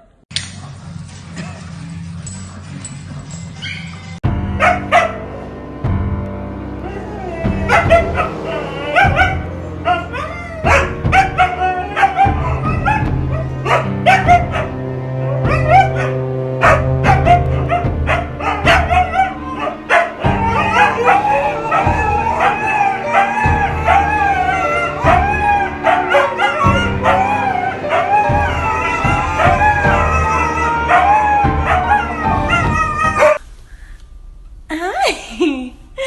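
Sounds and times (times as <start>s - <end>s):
music with steady bass: 4.2s - 33.4s
dog howling and yipping: 6.8s - 33.4s.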